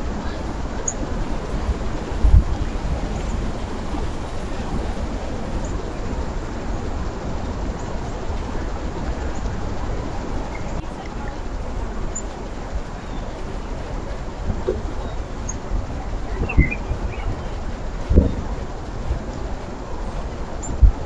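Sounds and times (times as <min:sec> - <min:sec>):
high bird chirps: 0:14.8 - 0:17.6.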